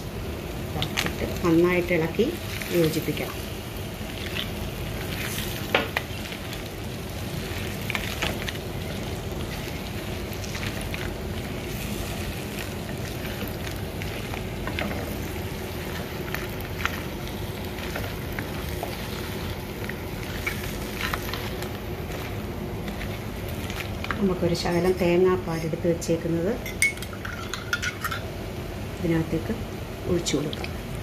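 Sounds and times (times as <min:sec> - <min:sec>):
food sizzling in a pan: 0:00.0 - 0:31.0
crab shells knocking against pan: 0:05.6 - 0:06.1.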